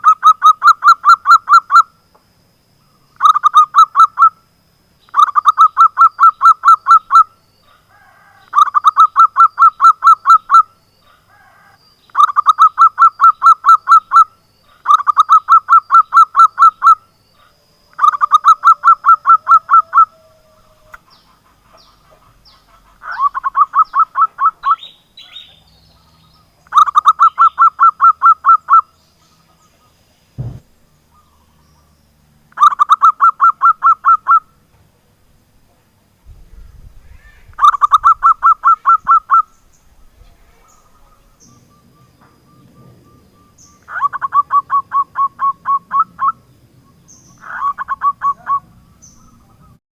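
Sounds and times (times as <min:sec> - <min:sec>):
dove cooing: 0:05.2 - 0:25.6, 0:26.7 - 0:28.8, 0:37.1 - 0:46.5, 0:47.4 - 0:49.8
low thump: 0:30.4 - 0:30.7.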